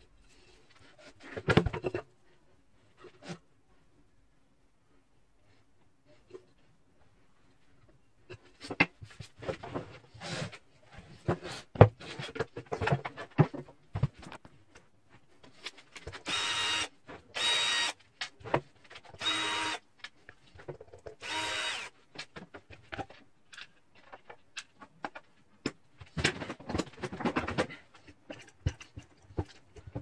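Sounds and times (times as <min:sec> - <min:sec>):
power drill whining: 0:16.3 - 0:18.0, 0:19.2 - 0:19.8, 0:21.2 - 0:21.9.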